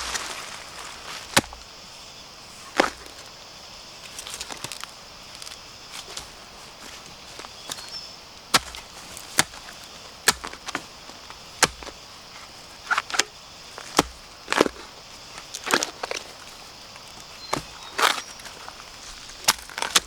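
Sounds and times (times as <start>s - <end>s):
blade chopping bamboo: 0.0s - 1.7s, 7.7s - 12.0s, 12.8s - 16.2s, 19.3s - 20.0s.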